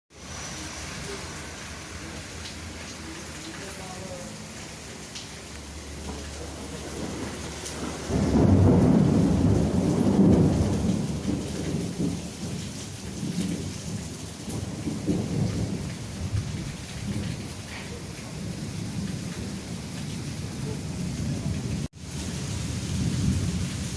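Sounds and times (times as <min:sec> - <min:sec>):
heavy rain falling: 0:00.1 - 0:23.9
thunder rolling: 0:06.4 - 0:23.9.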